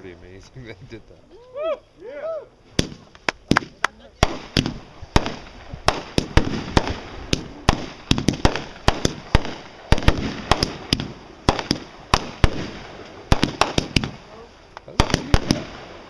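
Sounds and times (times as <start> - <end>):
fireworks bangs with echo: 2.8 - 16.0.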